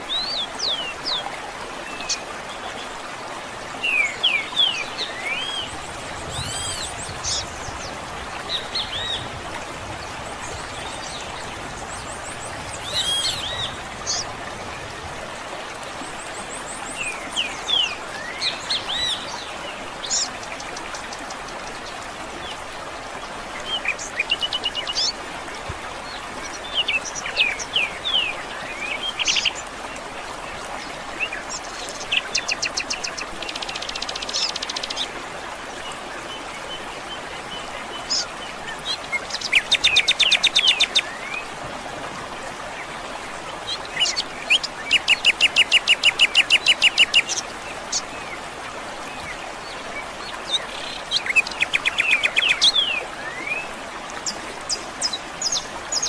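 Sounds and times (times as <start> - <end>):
flowing water hiss: 0.0 - 56.0
songbirds singing and chirping: 3.7 - 15.2, 36.2 - 41.6, 42.5 - 56.0.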